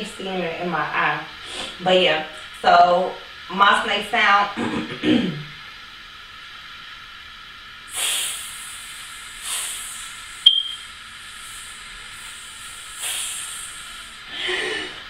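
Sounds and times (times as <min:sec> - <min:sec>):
woman hissing like a snake: 0:07.9 - 0:10.5, 0:11.1 - 0:15.0.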